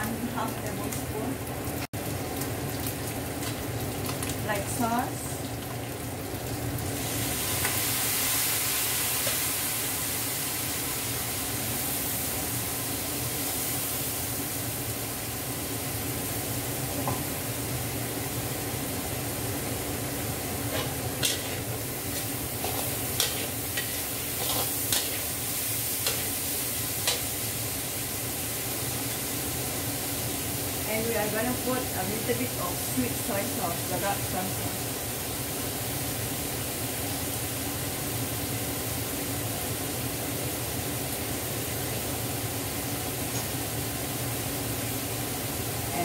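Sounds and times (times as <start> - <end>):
rice sizzling in a wok: 0.0 - 46.0.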